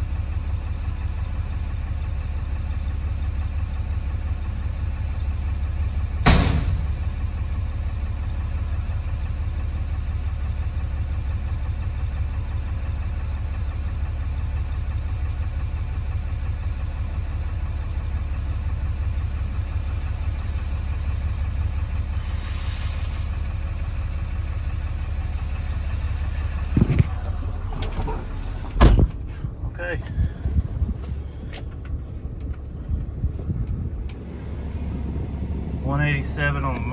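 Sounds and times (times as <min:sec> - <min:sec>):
diesel engine idling: 0:00.0 - 0:36.9
sharp knock: 0:06.3 - 0:07.3
brief hiss: 0:22.2 - 0:23.9.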